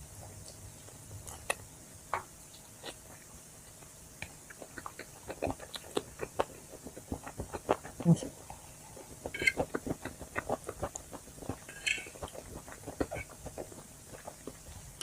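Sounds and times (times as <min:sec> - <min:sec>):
mouth clicks: 0:04.2 - 0:08.3.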